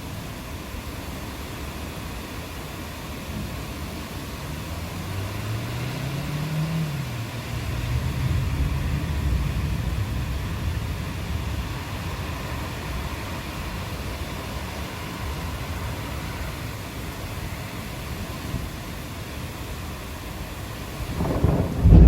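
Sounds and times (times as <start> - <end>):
steady rainfall hiss: 0.0 - 22.0
low rumble: 21.2 - 22.0.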